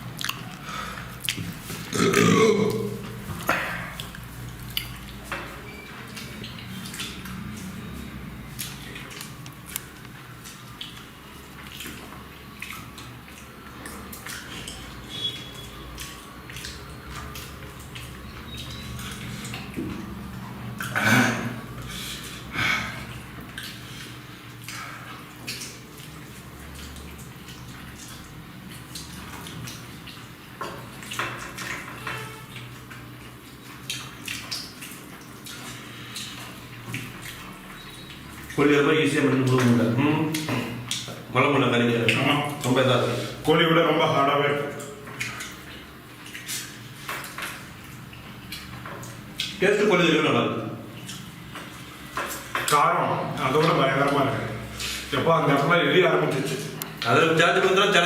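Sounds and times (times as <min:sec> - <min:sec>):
wet smacking and chewing: 0:00.0 - 0:43.4, 0:44.6 - 0:49.6, 0:50.9 - 0:55.7, 0:56.3 - 0:57.2
people eating by hand: 0:00.0 - 0:58.0.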